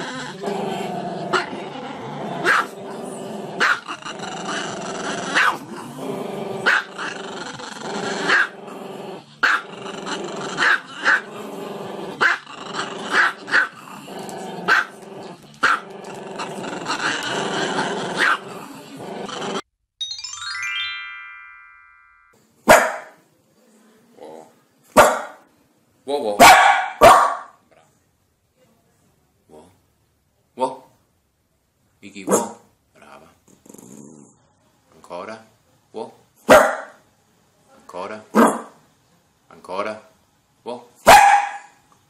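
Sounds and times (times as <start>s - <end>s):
chiming transition effect: 20.0s - 22.4s
music playing: 20.0s - 22.4s
dog barking sharply: 22.7s - 23.2s, 25.0s - 25.4s, 26.4s - 27.6s, 32.3s - 32.6s, 36.5s - 37.0s, 38.4s - 38.8s, 41.1s - 41.8s.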